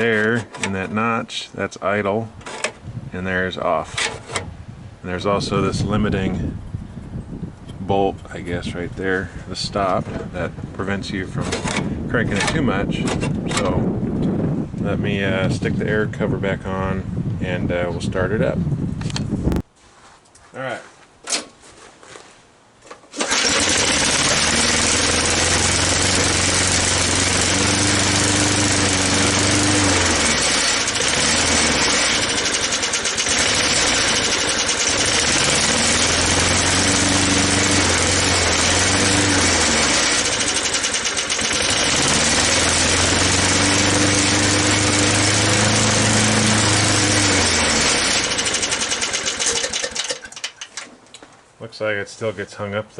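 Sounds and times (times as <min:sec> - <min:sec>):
mower engine revving: 0:23.1 - 0:50.6.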